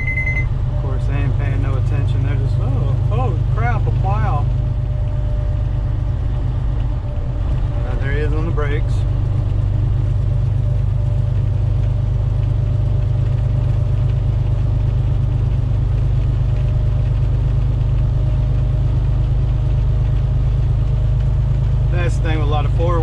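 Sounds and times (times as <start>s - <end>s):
road noise: 0.0s - 23.0s
truck diesel engine drone: 0.0s - 23.0s.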